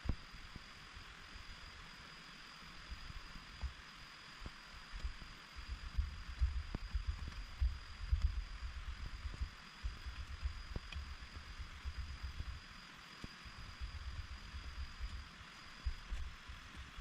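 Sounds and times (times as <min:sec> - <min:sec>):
raindrops ticking close by: 0:04.4 - 0:12.6.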